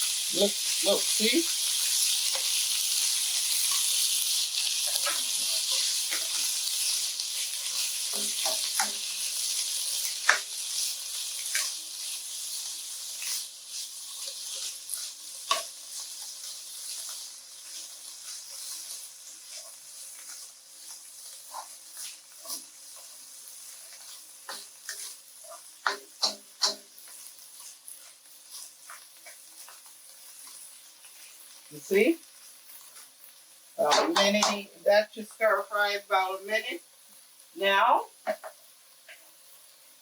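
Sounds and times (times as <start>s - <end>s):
broccoli sizzling in a pan: 0.0s - 40.0s
utensil clacking against pan: 4.9s - 6.5s, 25.8s - 27.0s, 33.8s - 34.6s.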